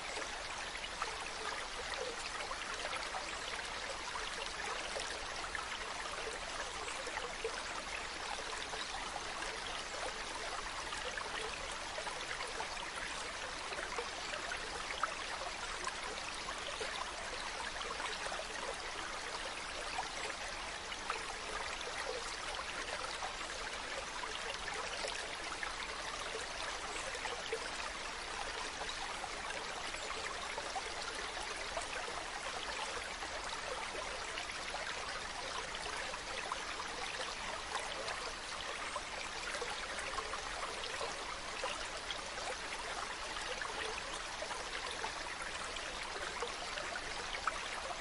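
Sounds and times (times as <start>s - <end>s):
stream running over rocks: 0.0s - 48.0s.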